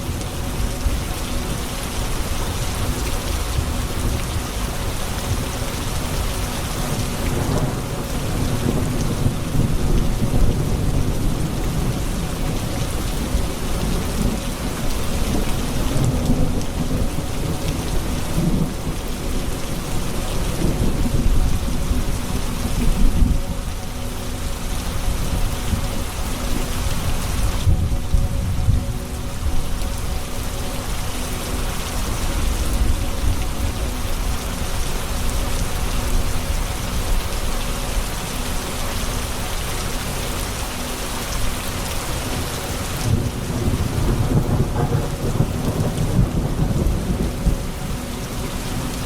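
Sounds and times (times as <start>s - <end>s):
rain on hard surfaces: 0.0s - 49.0s
rolling thunder rumbling: 42.9s - 48.9s.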